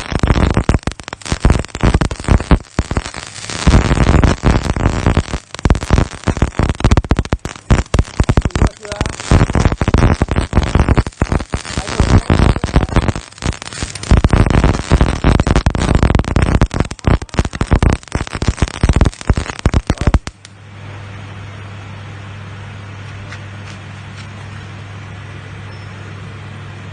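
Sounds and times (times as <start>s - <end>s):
welding arc crackling: 0.0s - 20.6s
steady low hum: 0.0s - 26.9s.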